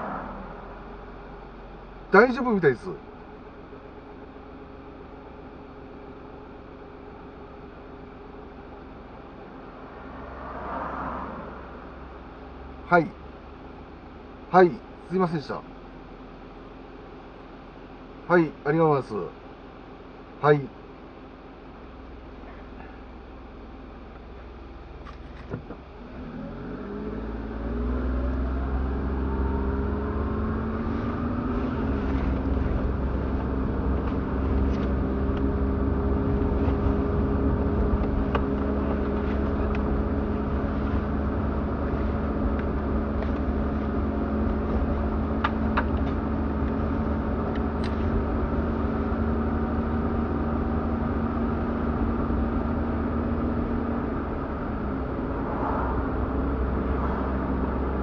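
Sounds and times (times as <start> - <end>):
low road rumble: 0.0 - 58.0
car engine pulling away: 8.6 - 13.9, 25.0 - 58.0.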